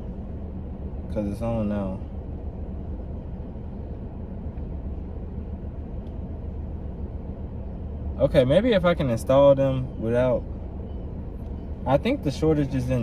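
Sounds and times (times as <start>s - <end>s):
car engine idling: 0.0s - 13.0s
faint tick: 6.0s - 6.2s.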